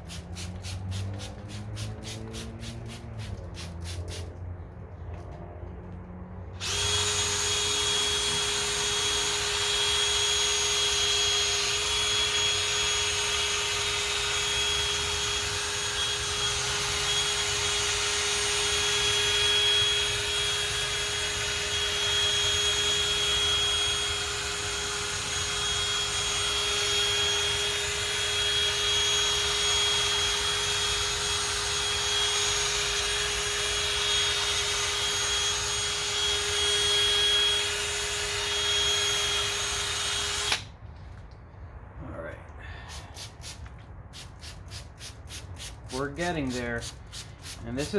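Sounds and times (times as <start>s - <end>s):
power drill motor hum: 6.6s - 40.7s.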